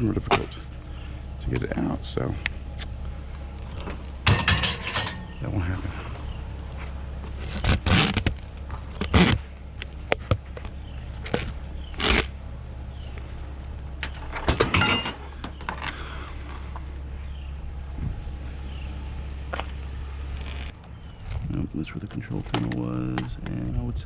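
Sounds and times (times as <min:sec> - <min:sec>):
steady low hum: 0:00.0 - 0:24.0
metal parts clanking: 0:03.8 - 0:05.5, 0:14.0 - 0:16.0.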